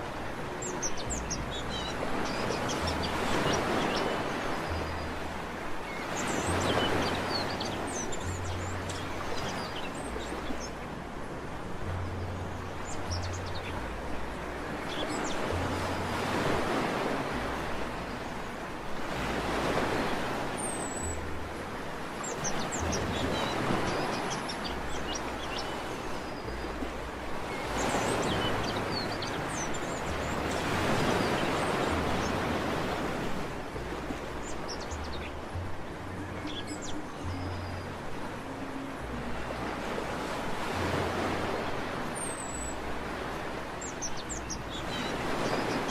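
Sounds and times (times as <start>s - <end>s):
sea waves breaking on beach: 0.0s - 45.9s
small birds chirping: 22.0s - 33.2s, 40.2s - 45.9s.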